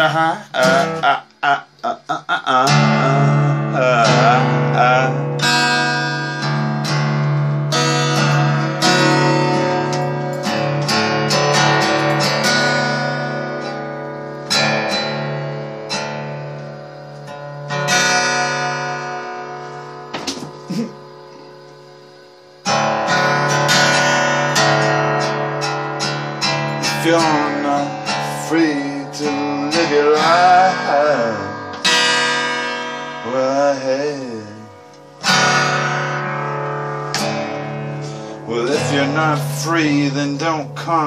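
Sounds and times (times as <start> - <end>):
person vocalizing wordlessly: 0.0 - 5.2, 20.7 - 21.0
acoustic guitar strumming: 0.0 - 41.0.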